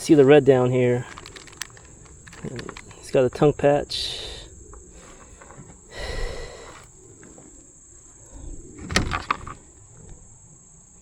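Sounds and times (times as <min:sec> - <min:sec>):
insects droning: 0:00.0 - 0:11.0
clicks and knocks: 0:01.1 - 0:03.0.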